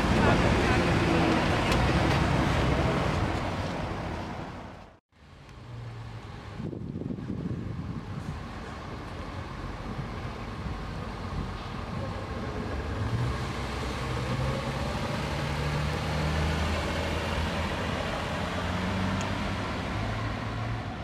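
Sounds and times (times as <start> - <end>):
car engine driving past: 11.9 - 21.0.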